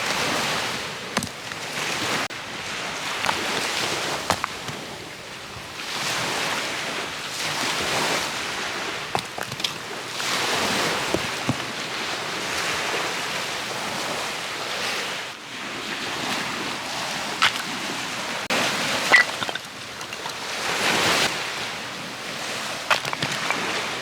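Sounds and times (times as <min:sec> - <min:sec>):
sea waves washing onto shore: 0:00.0 - 0:24.0.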